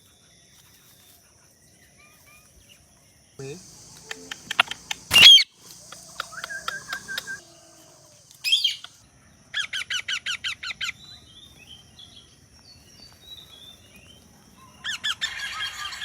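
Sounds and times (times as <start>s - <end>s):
parrot calling: 3.4s - 9.0s
parrot chattering: 3.4s - 9.0s
faint chirps: 3.4s - 9.4s.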